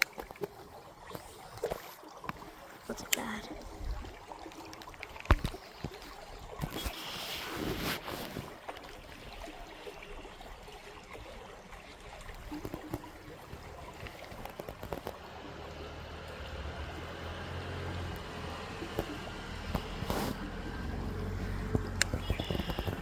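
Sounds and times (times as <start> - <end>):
creek water running: 0.0 - 23.0
small clicks: 12.4 - 15.2, 21.3 - 23.0.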